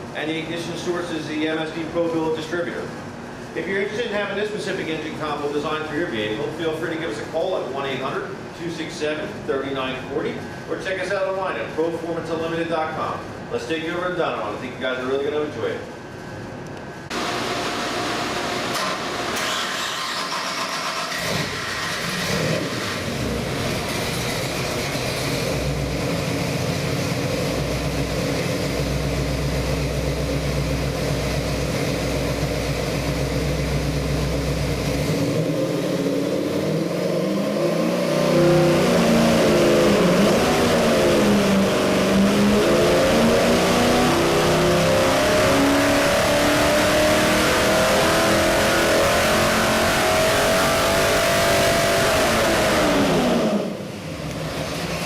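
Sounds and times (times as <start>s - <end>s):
car engine idling and revving: 17.1s - 55.0s.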